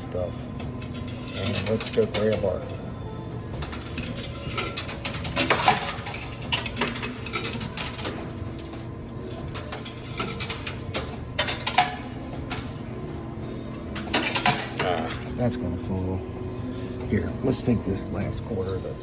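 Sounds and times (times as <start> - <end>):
arcade machine low hum: 0.0 - 19.0
coins clinking and sliding: 0.8 - 2.8, 3.5 - 12.9, 13.7 - 15.4.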